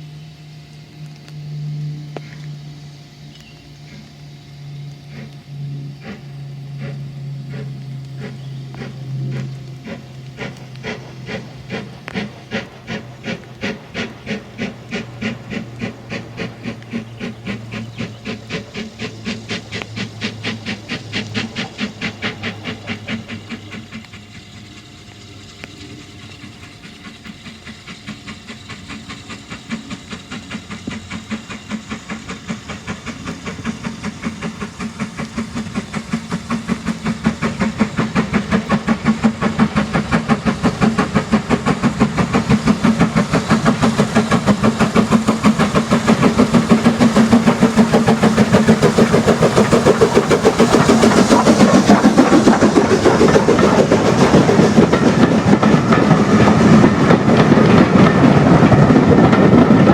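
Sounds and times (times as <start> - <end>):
steam hissing: 0.0 - 59.9
steam locomotive chuffing: 0.0 - 59.9.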